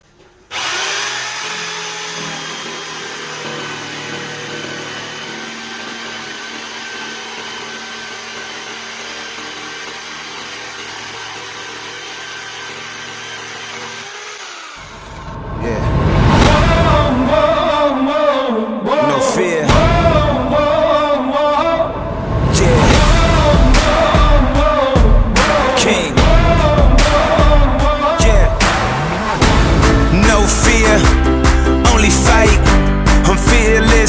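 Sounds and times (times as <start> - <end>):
electric jigsaw motor running: 0.5 - 15.4
deep booming swell: 15.2 - 18.3, 19.7 - 31.8.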